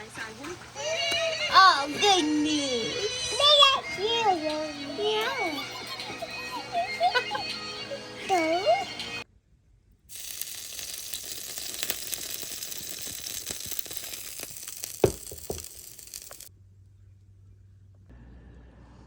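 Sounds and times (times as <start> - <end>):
heavy rain falling: 10.1 - 16.5.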